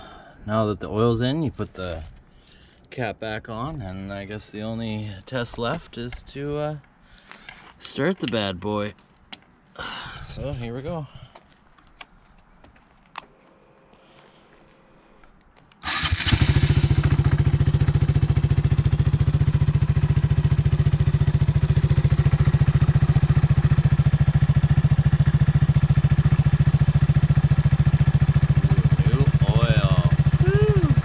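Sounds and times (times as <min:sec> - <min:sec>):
motorcycle engine starting and idling: 0:15.8 - 0:31.0.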